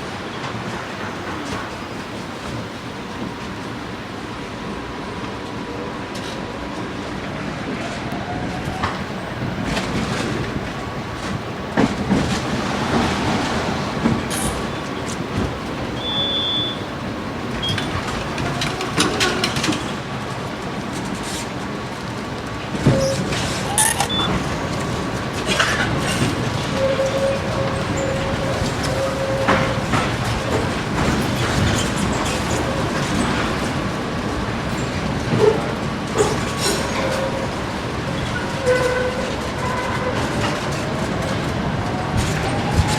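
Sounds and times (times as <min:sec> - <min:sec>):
tram rumbling on rails: 0:00.0 - 0:42.9
wheels clicking over track: 0:08.8 - 0:42.9.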